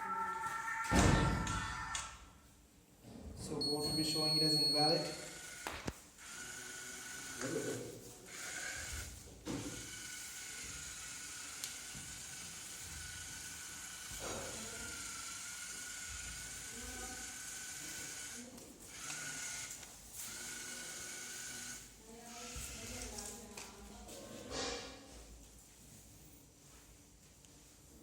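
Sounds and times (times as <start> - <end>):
robot drive motors whining: 6.2 - 21.8.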